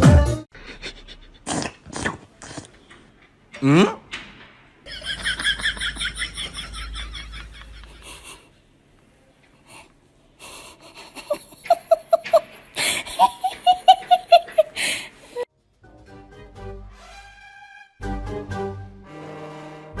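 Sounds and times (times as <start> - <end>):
wheezy laughter: 0.6 - 1.6, 4.9 - 8.5, 10.4 - 15.4.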